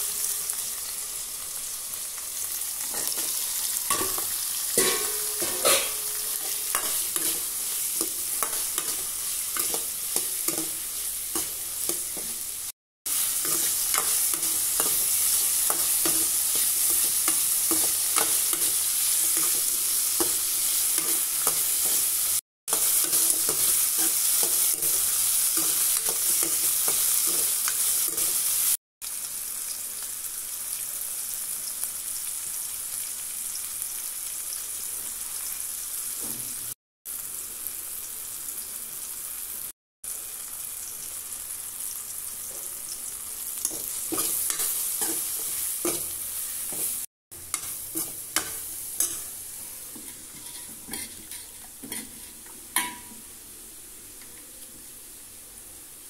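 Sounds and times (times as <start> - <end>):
vegetables sizzling in hot oil: 0.0 - 56.0
ladle scraping and clinking on pan: 4.8 - 7.4, 49.9 - 53.1.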